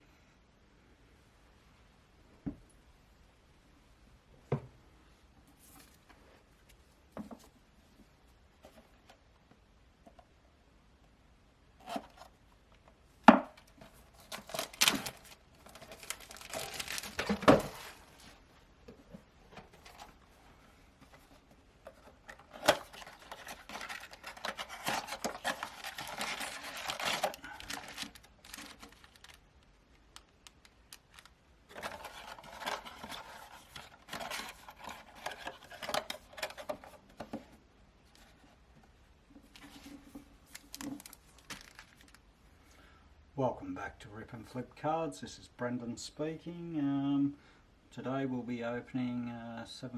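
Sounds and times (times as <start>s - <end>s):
foil wrappers tearing and crinkling: 14.2s - 18.0s, 22.6s - 29.4s, 40.5s - 42.2s.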